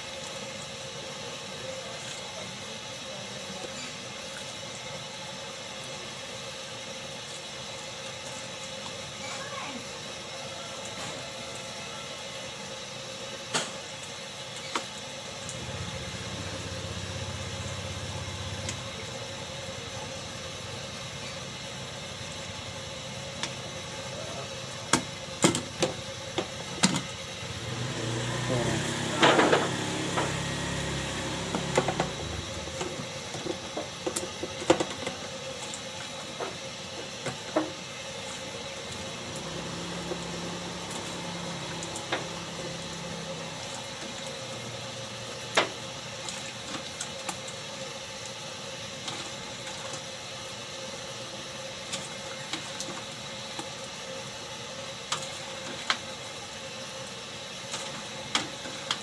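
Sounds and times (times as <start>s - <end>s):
low engine-like rumble: 15.4s - 33.4s, 38.9s - 45.3s.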